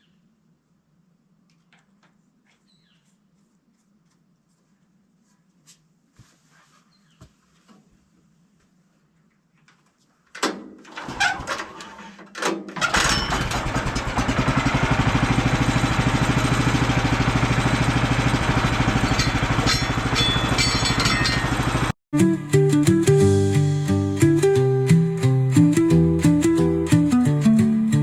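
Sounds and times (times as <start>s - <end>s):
small gasoline engine running: 12.8s - 21.9s
knocks and clatter: 18.4s - 21.9s.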